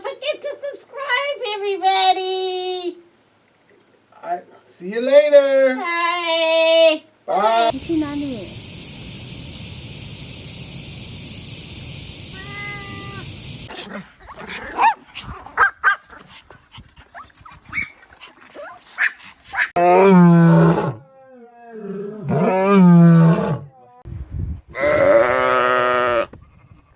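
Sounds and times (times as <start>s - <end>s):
steady hiss: 7.7s - 14.3s.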